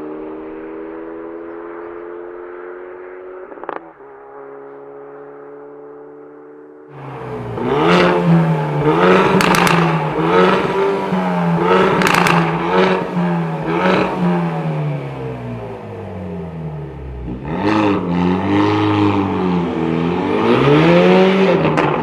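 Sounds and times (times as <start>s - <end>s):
car engine revving: 0.0s - 22.0s
exhaust pops and crackles: 7.0s - 14.7s, 21.6s - 22.0s.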